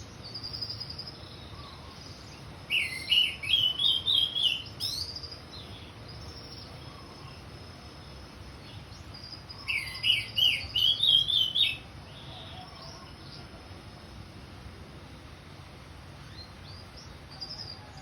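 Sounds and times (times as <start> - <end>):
thrush singing whistled notes: 0.0 - 14.3
faint background hiss: 0.0 - 18.0.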